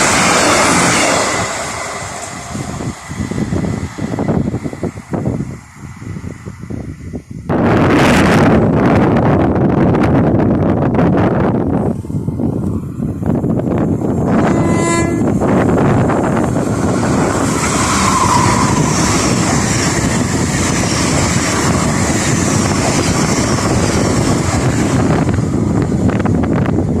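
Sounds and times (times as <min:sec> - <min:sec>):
train wheel and rail noise: 0:00.0 - 0:27.0
train horn blast: 0:14.2 - 0:15.5.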